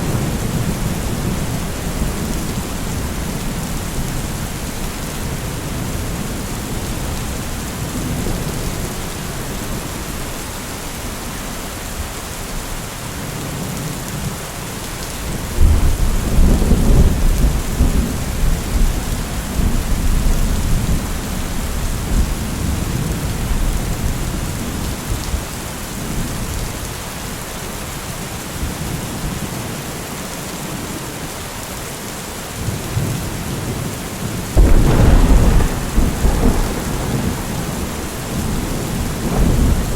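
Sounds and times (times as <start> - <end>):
heavy rain: 0.0 - 39.9
thunder rumbling: 34.6 - 39.9.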